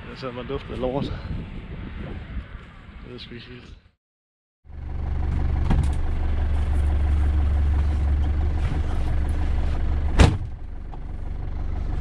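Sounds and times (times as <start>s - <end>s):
vehicle engine idling: 4.7s - 12.0s.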